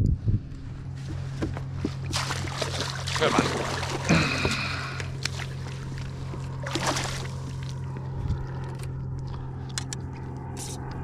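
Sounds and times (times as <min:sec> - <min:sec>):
steady low hum: 0:00.0 - 0:11.0
water splashing around kayak: 0:01.1 - 0:08.3.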